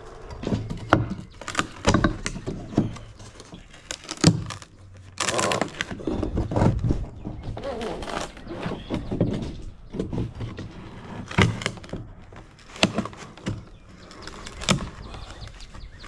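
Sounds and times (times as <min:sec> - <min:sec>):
wooden boards knocking and clattering: 0:00.2 - 0:04.7, 0:05.7 - 0:16.0.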